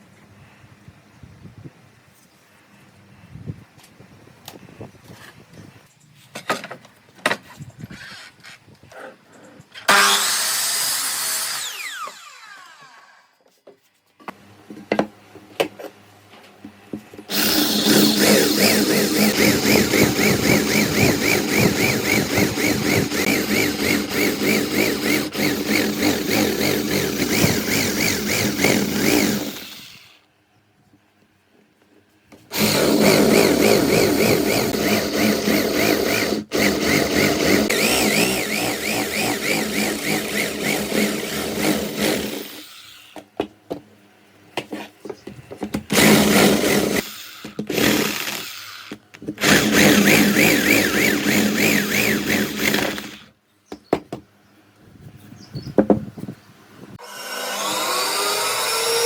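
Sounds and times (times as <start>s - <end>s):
handheld power tool running: 9.9s - 13.1s, 17.3s - 30.2s, 32.5s - 43.2s, 45.9s - 53.3s, 57.0s - 59.0s
wood and tools knocking: 44.6s - 46.2s, 53.7s - 54.3s, 55.7s - 56.1s.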